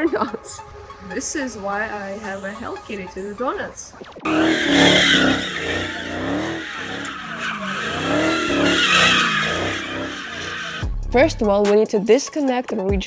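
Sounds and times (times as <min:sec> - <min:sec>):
tyres squealing: 0:00.0 - 0:10.9
car engine running hard: 0:04.2 - 0:11.0.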